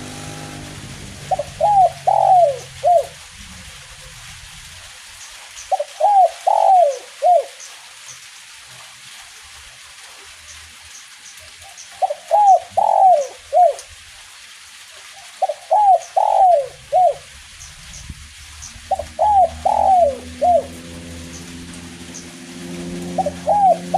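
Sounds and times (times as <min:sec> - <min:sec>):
light drizzle hiss: 0:00.0 - 0:23.9
dove cooing: 0:01.2 - 0:04.2, 0:05.7 - 0:07.5, 0:12.0 - 0:13.8, 0:15.4 - 0:17.3, 0:18.8 - 0:23.9.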